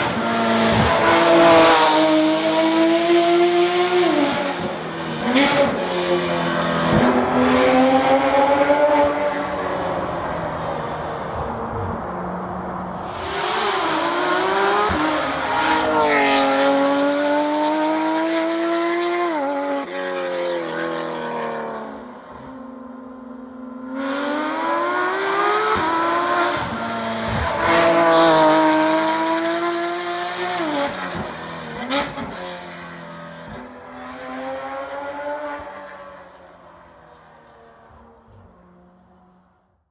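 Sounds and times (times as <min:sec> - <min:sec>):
car engine revving hard: 0:00.0 - 0:19.7, 0:24.0 - 0:32.4.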